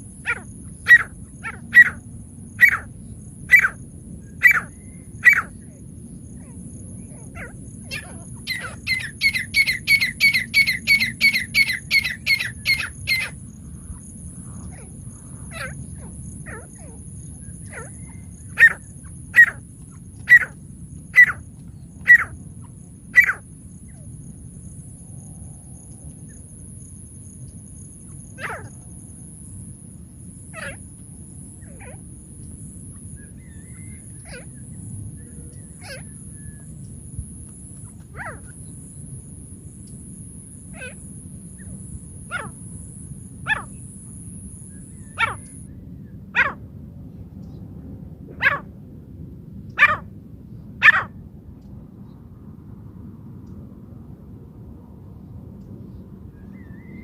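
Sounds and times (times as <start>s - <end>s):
francolin calling: 0.0s - 24.1s, 31.6s - 37.0s, 40.7s - 45.7s.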